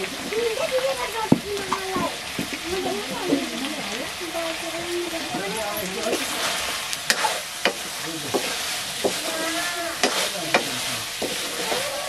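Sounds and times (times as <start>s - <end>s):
chicken sizzling in a wok: 0.0s - 12.0s
metal ladle scraping a pan: 5.9s - 12.0s.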